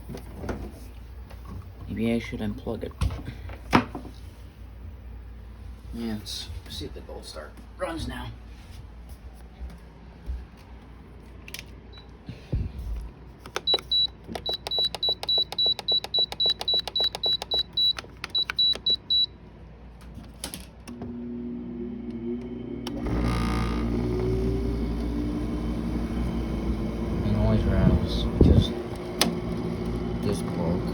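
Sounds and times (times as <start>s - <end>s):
fan air noise: 0.0s - 21.0s, 22.1s - 30.9s
motor hum: 12.9s - 19.3s, 20.9s - 30.9s
control panel clicking beeps: 13.5s - 19.3s.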